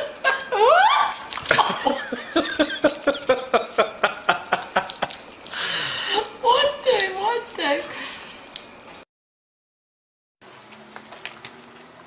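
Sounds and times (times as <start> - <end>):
puppy eating from a plate: 1.3 - 9.0, 10.4 - 12.0.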